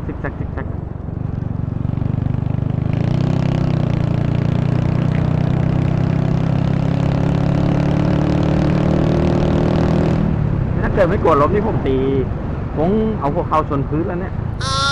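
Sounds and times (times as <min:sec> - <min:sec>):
motorcycle engine running: 0:00.8 - 0:03.0.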